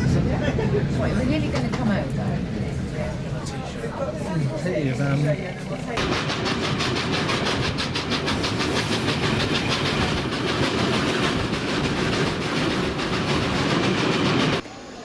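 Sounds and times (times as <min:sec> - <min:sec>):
train rumble: 0:00.0 - 0:14.7
train wheels clattering: 0:05.8 - 0:14.6.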